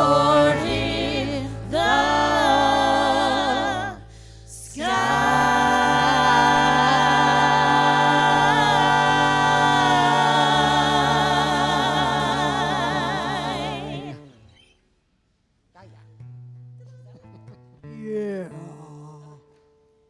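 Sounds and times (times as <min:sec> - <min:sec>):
vocal group singing gospel harmony: 0:00.0 - 0:14.6.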